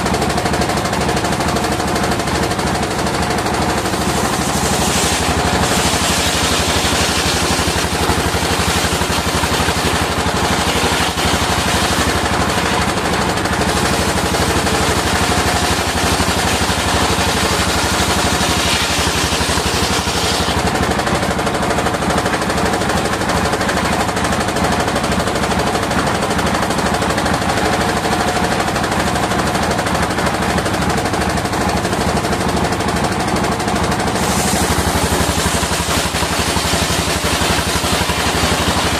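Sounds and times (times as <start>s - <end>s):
circular saw cutting wood: 2.6s - 22.0s, 34.0s - 38.9s.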